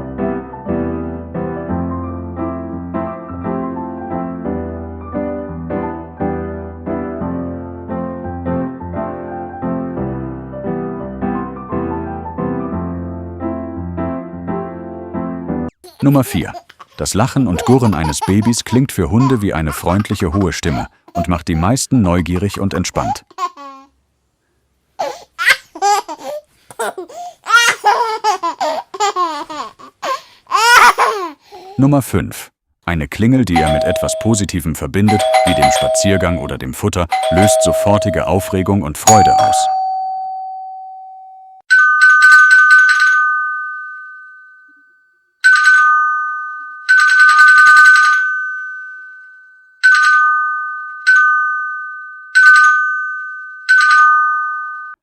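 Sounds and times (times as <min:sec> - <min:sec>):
baby laughing and cooing: 0:15.7 - 0:23.9, 0:25.0 - 0:31.8
bell ringing: 0:33.6 - 0:55.0.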